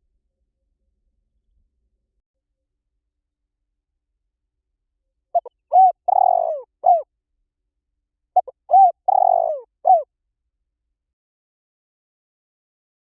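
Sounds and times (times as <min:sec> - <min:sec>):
dove cooing: 0:05.4 - 0:07.0, 0:08.4 - 0:10.1.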